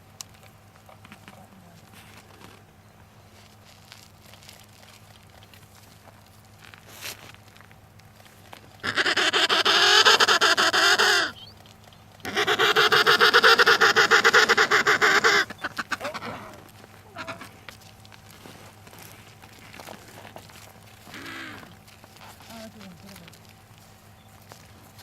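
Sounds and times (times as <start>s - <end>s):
animal pulsing calls: 8.6s - 17.8s, 19.0s - 23.4s.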